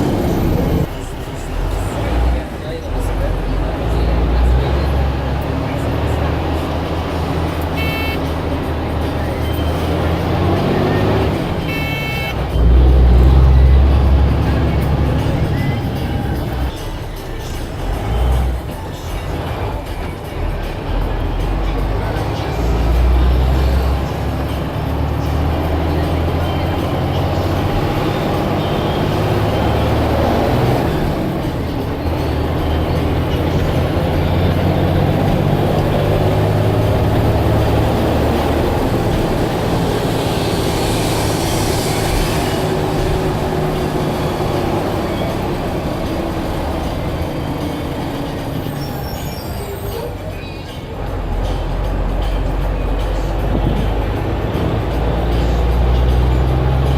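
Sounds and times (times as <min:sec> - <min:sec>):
bus engine drone: 0:00.0 - 0:56.9
air hiss: 0:39.4 - 0:44.6.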